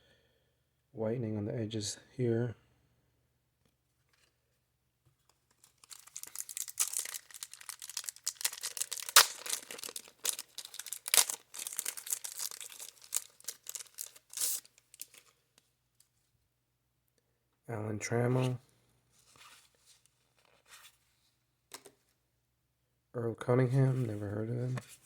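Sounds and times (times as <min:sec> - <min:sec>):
wrapper crinkling and tearing: 0:05.6 - 0:15.4.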